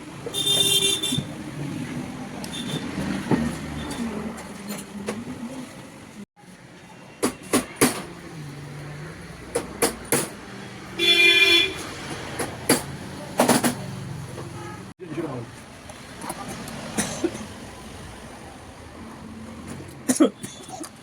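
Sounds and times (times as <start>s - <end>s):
traffic noise: 0.0s - 21.0s
vehicle horn toot: 0.3s - 1.3s, 11.0s - 11.8s, 14.5s - 14.9s
sharp clicks and knocks: 9.5s - 10.4s, 11.8s - 14.6s.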